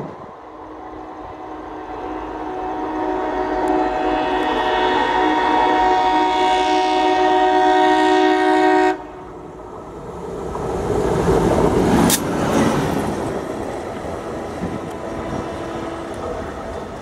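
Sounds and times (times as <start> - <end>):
train passing at speed: 0.0 - 17.0
locomotive horn chord: 0.4 - 9.3
sharp crack: 12.0 - 12.4.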